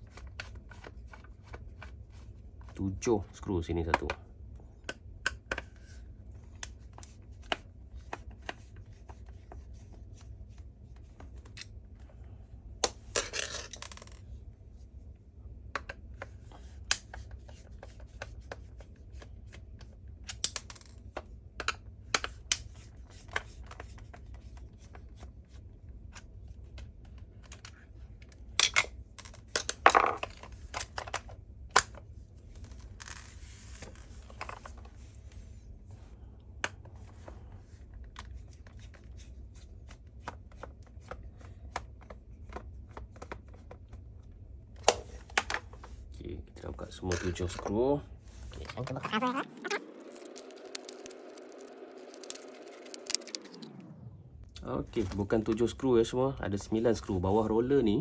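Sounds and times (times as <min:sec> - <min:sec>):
low hum: 0:48.1 - 0:55.5.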